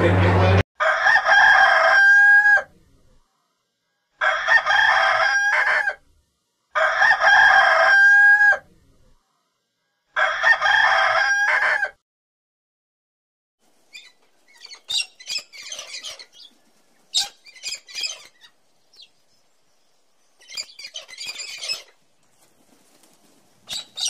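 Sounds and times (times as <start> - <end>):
rooster crowing: 0.8 - 2.7, 4.2 - 6.0, 6.7 - 8.6, 10.1 - 12.0.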